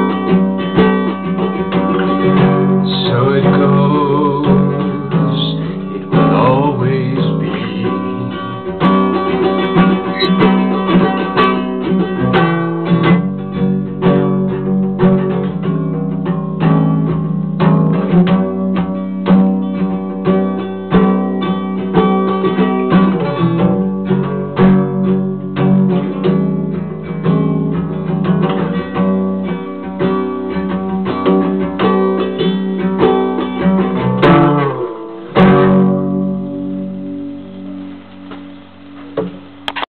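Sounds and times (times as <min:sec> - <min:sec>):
acoustic guitar picking and strumming: 0:00.0 - 0:39.9.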